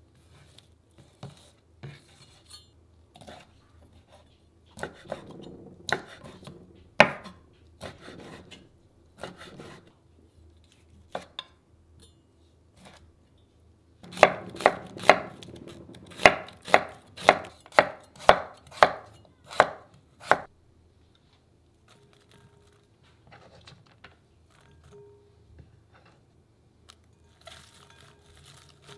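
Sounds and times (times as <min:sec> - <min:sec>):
knife cutting on wooden board: 0:09.2 - 0:09.9, 0:16.1 - 0:19.0.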